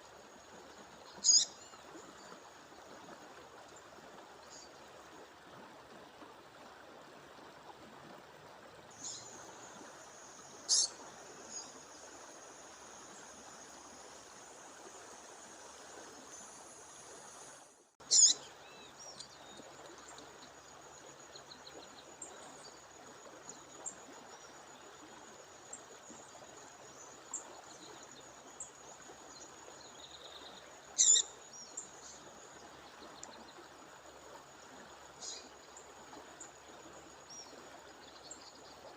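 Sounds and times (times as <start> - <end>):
bird calling: 1.2 - 1.5, 10.7 - 11.0, 18.1 - 18.4, 31.0 - 31.3.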